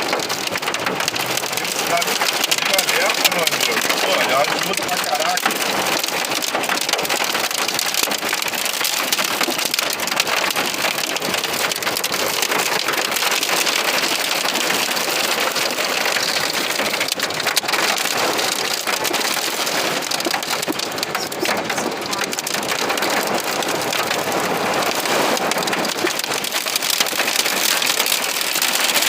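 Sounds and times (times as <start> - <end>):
heavy rain pelting down: 0.0 - 29.0.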